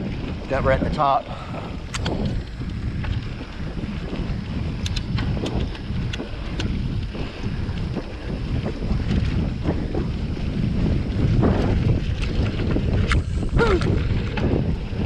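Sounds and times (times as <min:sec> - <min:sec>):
bike clicks and rattles: 0:00.0 - 0:15.0
tyres rumbling on trail: 0:00.0 - 0:15.0
wind buffeting microphone: 0:00.0 - 0:15.0.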